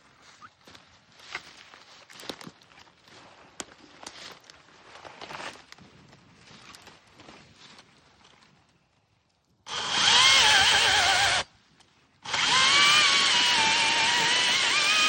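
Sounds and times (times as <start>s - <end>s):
cordless chainsaw running: 9.7s - 11.5s, 12.2s - 15.0s.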